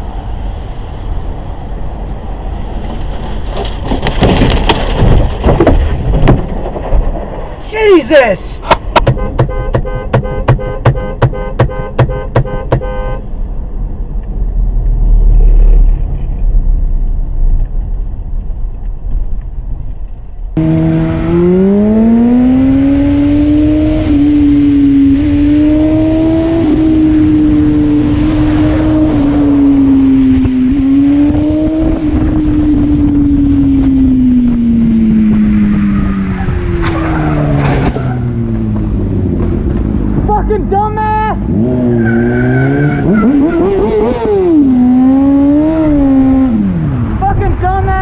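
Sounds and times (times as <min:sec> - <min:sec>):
low road rumble: 0:00.0 - 0:48.0
car engine revving: 0:20.6 - 0:40.3, 0:41.4 - 0:47.4.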